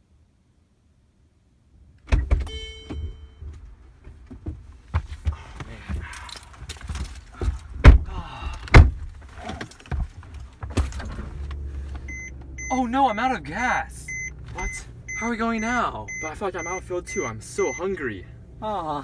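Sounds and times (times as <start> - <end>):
heavy door thumps: 7.4 - 11.2.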